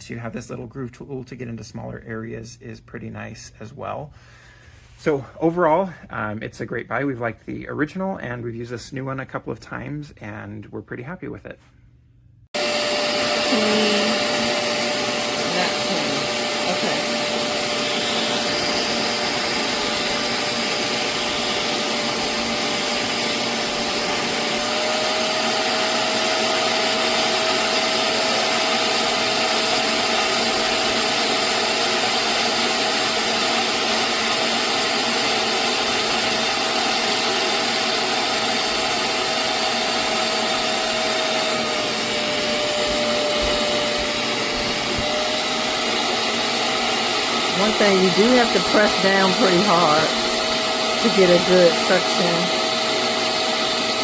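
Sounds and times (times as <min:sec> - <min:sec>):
suction motor whining: 0:12.6 - 0:54.0.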